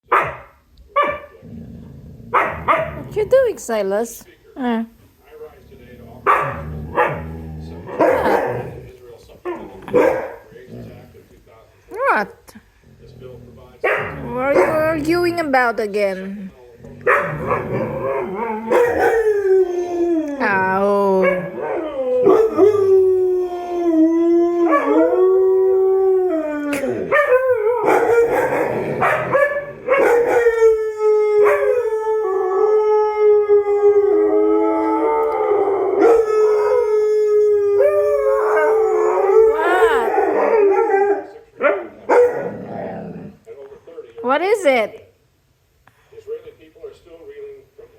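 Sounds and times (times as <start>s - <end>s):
dogs howling: 1.0s - 3.8s, 5.4s - 11.3s, 12.9s - 15.7s, 16.8s - 43.4s.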